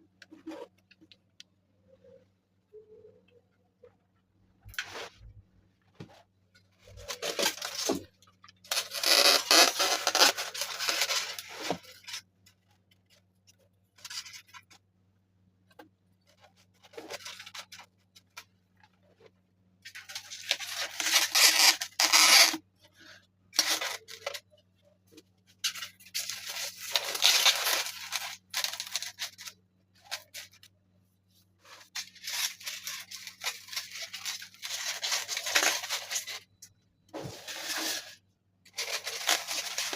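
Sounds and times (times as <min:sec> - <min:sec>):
tearing and scraping of materials: 0:06.8 - 0:13.2, 0:19.9 - 0:24.5, 0:25.6 - 0:30.7, 0:31.6 - 0:36.5, 0:37.2 - 0:39.9.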